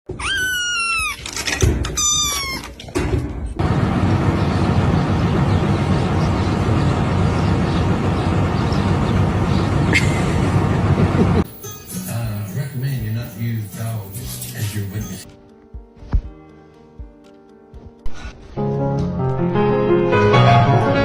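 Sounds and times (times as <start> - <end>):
cat meowing: 0.1 - 1.3, 2.0 - 2.8
loud low steady noise: 3.6 - 11.4.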